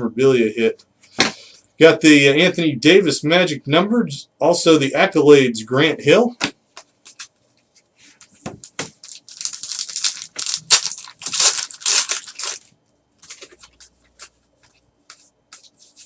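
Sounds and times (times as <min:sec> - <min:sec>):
wrapper tearing and crinkling: 0:09.0 - 0:12.7.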